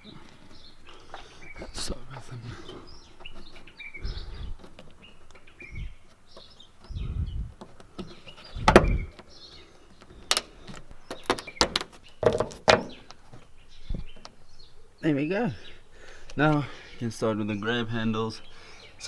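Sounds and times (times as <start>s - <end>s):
birds chirping: 0.0s - 19.0s
dull thumps: 1.7s - 9.3s, 10.0s - 14.4s.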